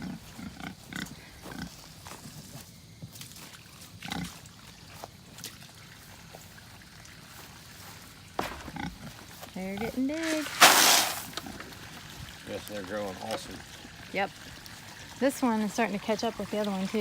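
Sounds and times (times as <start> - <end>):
pigs grunting: 0.0 - 1.9, 4.0 - 4.4, 8.4 - 10.3.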